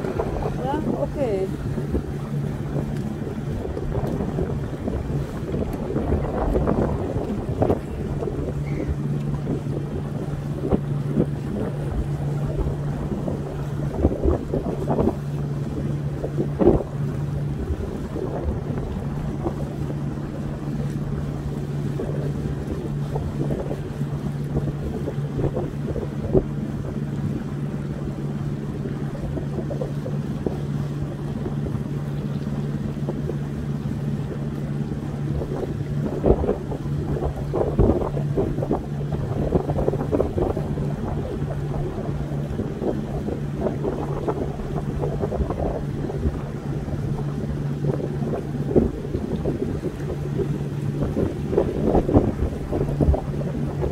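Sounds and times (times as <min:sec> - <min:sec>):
small boat motor running: 0:00.0 - 0:53.9
water noise: 0:00.0 - 0:53.9
wind buffeting microphone: 0:00.0 - 0:53.9.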